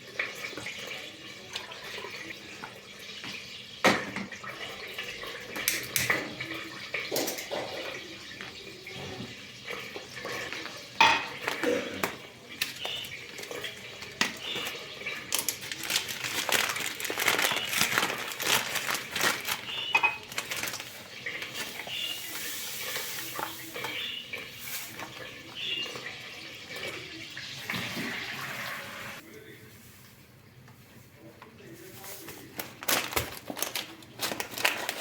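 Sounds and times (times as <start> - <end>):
water running from a tap: 0.0 - 29.2
dishes clinking: 3.8 - 28.0.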